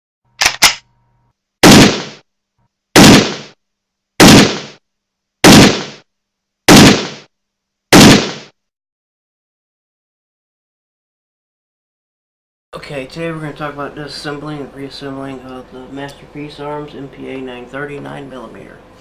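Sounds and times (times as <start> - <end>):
sharp clicks: 0.4 - 0.8
loud gunshots: 1.6 - 2.2, 3.0 - 3.6, 4.2 - 4.8, 5.4 - 6.0, 6.7 - 7.3, 7.9 - 8.5.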